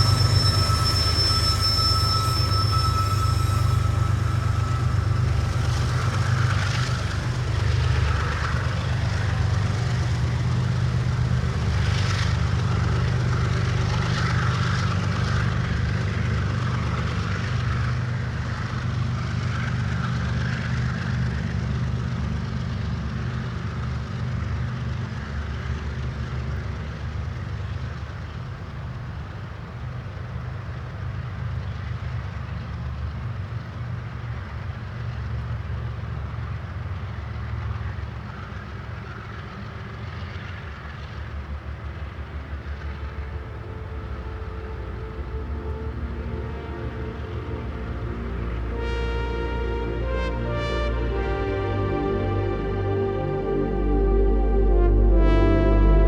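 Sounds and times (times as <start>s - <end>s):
high-pitched wheel squeal: 0.0s - 10.2s, 42.5s - 54.4s
train rumbling past: 0.0s - 56.0s.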